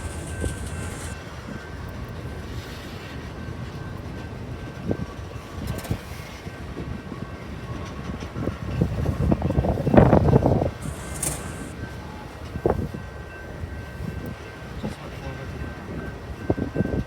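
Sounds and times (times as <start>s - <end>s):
wheels knocking: 0.0s - 1.2s
train rolling on rails: 0.0s - 17.0s.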